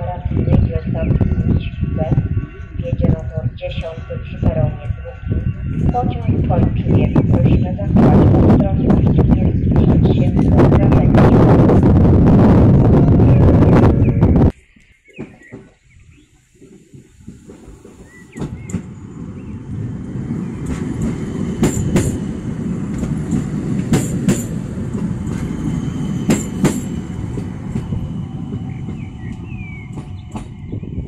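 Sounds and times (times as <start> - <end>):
train wheels rumbling on rail: 0.0 - 31.0
birds chirping: 13.4 - 31.0.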